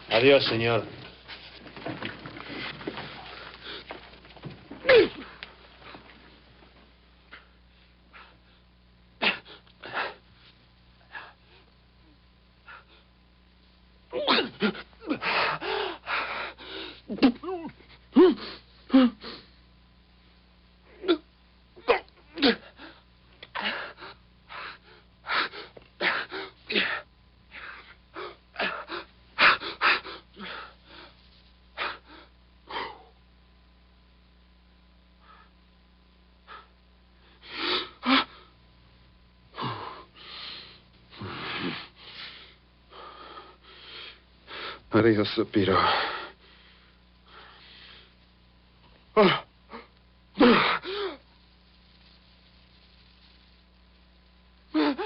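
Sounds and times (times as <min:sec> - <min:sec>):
faint steady hum: 0:00.0 - 0:55.0
man breathing hard: 0:15.1 - 0:17.1, 0:22.5 - 0:31.2, 0:39.5 - 0:44.9, 0:45.8 - 0:48.2, 0:54.7 - 0:55.0
man grunting: 0:49.2 - 0:49.8.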